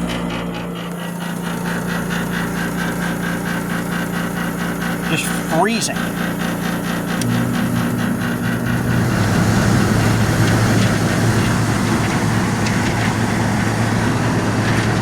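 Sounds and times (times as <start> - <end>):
air conditioner humming: 4.4 - 15.0.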